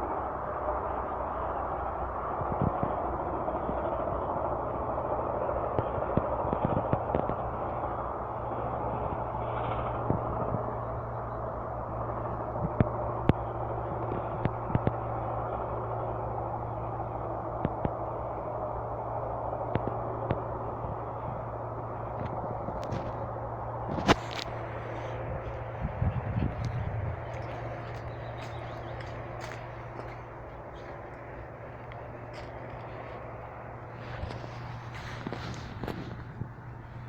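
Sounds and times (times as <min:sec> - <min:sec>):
steady rushing noise: 0:00.0 - 0:37.0
campfire popping and crackling: 0:19.7 - 0:37.0.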